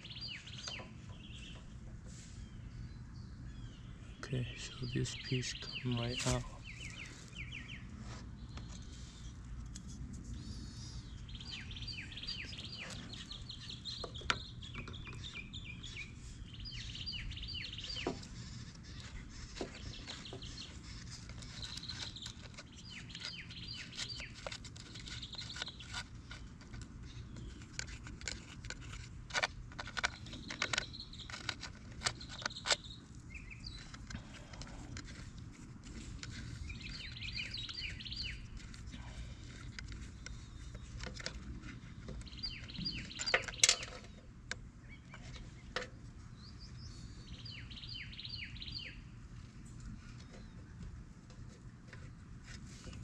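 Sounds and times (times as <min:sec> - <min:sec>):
songbirds chirping: 0:00.0 - 0:53.0
clicks and taps handling plastic: 0:17.9 - 0:32.8, 0:39.4 - 0:46.0.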